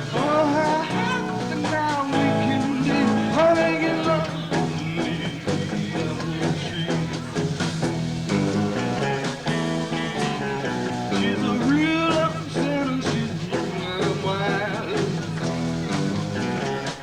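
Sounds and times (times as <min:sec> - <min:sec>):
bending lead guitar line: 0:00.0 - 0:17.0
blues-rock band playing: 0:00.0 - 0:17.0.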